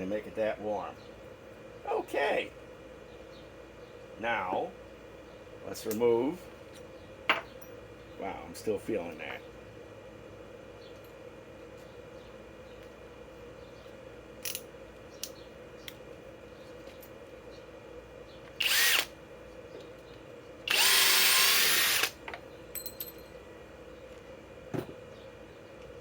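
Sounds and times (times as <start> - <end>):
power tool running: 18.6 - 19.1, 20.7 - 22.2.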